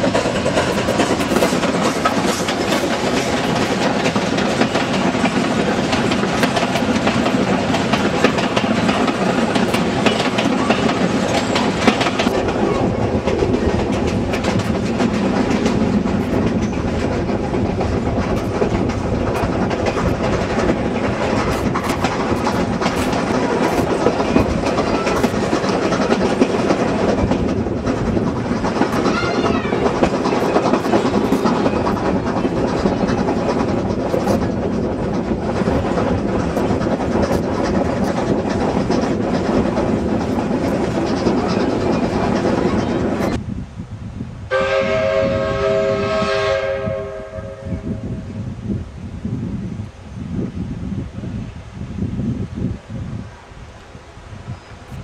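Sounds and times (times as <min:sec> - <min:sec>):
wheels clacking over rail joints: 0:00.0 - 0:43.4
rumble of train wheels on rail: 0:00.0 - 0:55.0.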